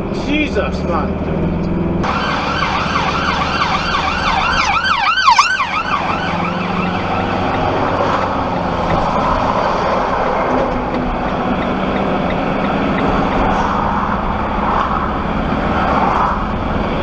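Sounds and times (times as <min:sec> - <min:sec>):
road and engine noise: 0:00.0 - 0:17.0
siren yelping: 0:02.0 - 0:08.8.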